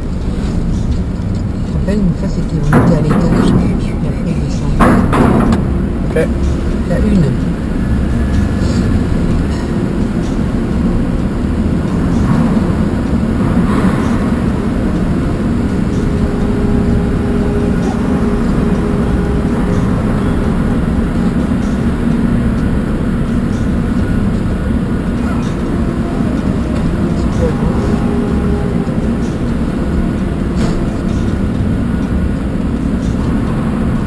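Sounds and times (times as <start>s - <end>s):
engine rumbling: 0.0s - 34.0s
faint steady hum: 0.0s - 34.0s.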